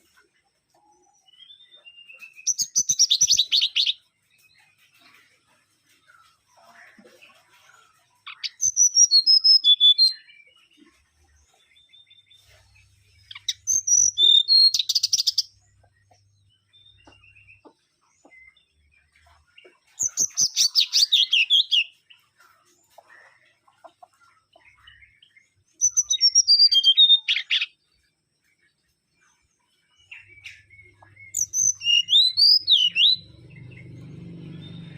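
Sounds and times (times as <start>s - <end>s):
bird whistling song: 1.4s - 4.0s, 8.3s - 10.3s, 13.2s - 15.5s, 20.0s - 21.9s, 25.8s - 27.8s, 30.1s - 34.9s.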